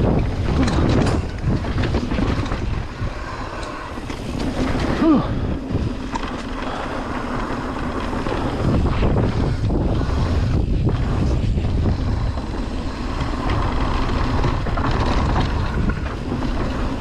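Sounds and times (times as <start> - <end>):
bike rumbling and rattling: 0.0 - 17.0
wind rushing over microphone: 0.0 - 17.0.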